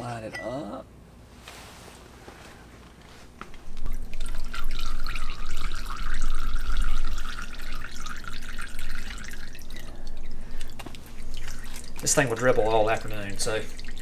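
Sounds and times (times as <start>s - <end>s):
oil pouring into a pan: 3.8s - 14.0s.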